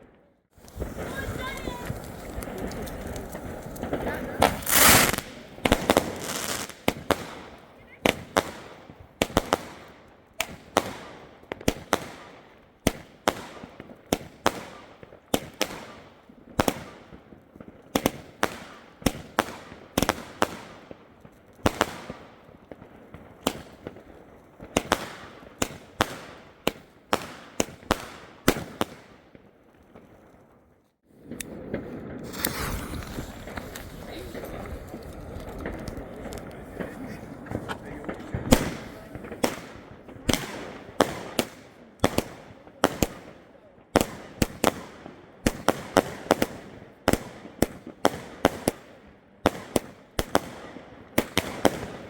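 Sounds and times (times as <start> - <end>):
outdoor background noise: 0.0 - 52.0
firework battery bangs: 0.6 - 7.4, 31.3 - 43.2.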